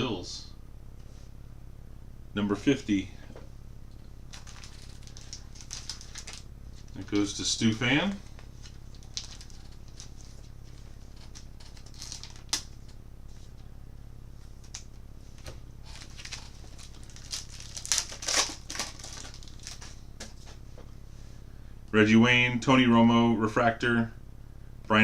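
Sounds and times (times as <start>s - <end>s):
steady low hum: 0.0s - 25.0s
foil wrapper crinkling: 4.2s - 13.0s, 14.6s - 20.5s
cards clicking and rustling: 4.3s - 13.0s, 14.6s - 20.5s.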